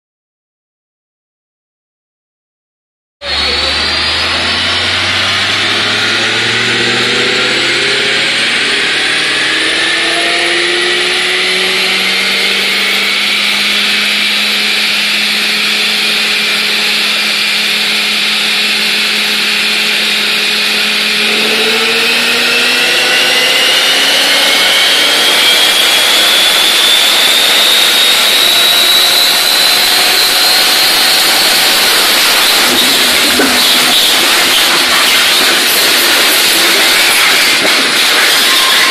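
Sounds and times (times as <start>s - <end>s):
engine full-throttle pull: 3.2s - 38.9s
high whine: 3.2s - 38.9s.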